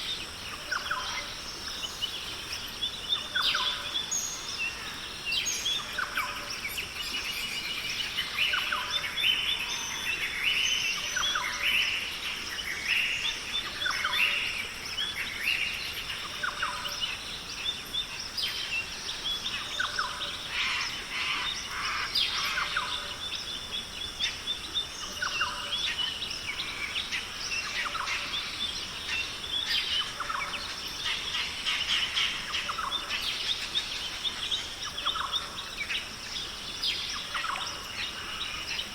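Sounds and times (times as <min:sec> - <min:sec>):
birds chirping and calling: 0:13.5 - 0:38.9.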